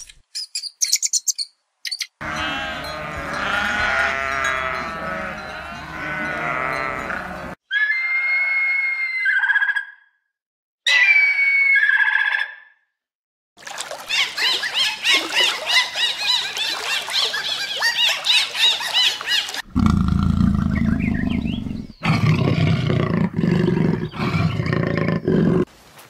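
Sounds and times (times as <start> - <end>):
dolphins whistling: 14.1 - 19.6
cheetah low rumbling: 19.7 - 25.6.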